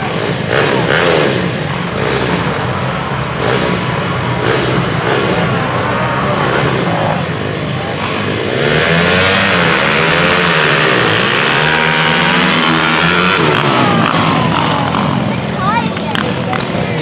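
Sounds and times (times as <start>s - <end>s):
motorcycle engines revving hard: 0.0s - 17.0s.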